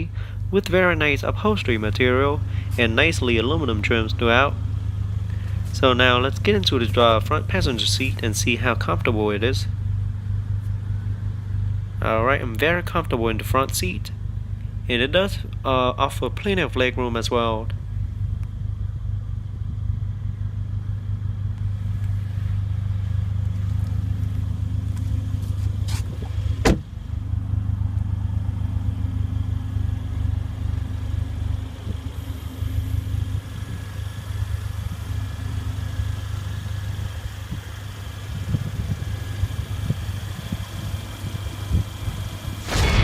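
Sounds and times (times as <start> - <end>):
car cabin rumble: 21.8 - 28.5.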